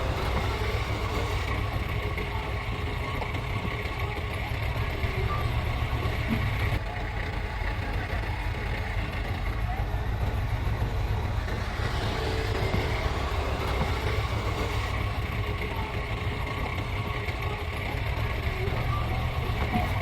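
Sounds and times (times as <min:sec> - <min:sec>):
diesel machinery engine rumble: 0:00.0 - 0:20.0
faint high whine: 0:00.0 - 0:20.0.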